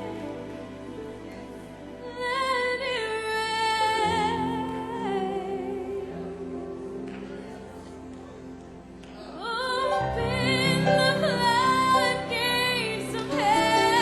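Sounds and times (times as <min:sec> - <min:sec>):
solo voice singing with vibrato: 0:09.4 - 0:14.0.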